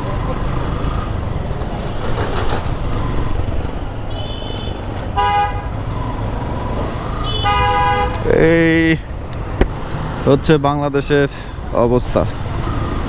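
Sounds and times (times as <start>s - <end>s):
low rumble of engines: 0.0s - 13.0s
vehicle horns honking: 4.0s - 5.8s, 7.2s - 8.4s.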